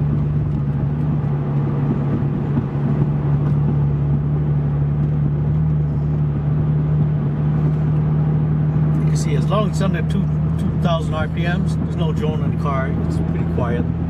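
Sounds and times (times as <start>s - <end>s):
car exhaust tone: 0.0s - 14.0s
road noise: 0.0s - 14.0s
wind over windshield: 0.0s - 14.0s.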